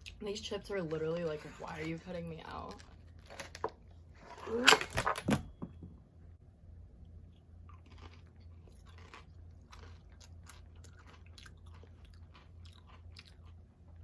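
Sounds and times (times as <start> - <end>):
chips being chewed: 7.4 - 14.0.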